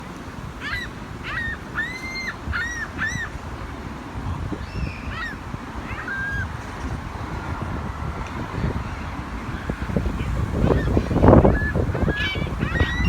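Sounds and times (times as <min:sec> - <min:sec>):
gulls squawking: 0:00.5 - 0:03.5, 0:04.5 - 0:06.8, 0:09.4 - 0:13.0.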